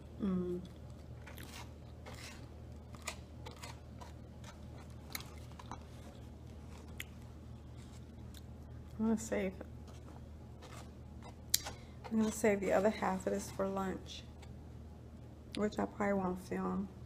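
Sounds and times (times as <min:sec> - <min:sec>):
low hum: 0:00.0 - 0:17.0
person chewing crunchy food: 0:00.6 - 0:08.6.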